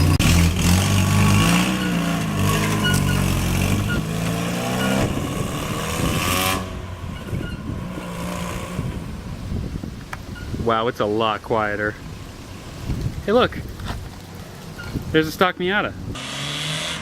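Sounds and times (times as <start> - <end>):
kart engine revving: 0.0 - 9.4, 16.1 - 17.0.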